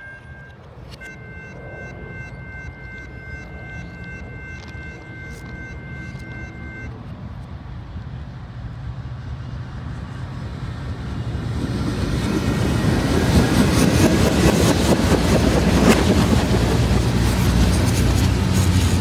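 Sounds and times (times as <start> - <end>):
freight train wheels clattering: 11.6 - 19.0.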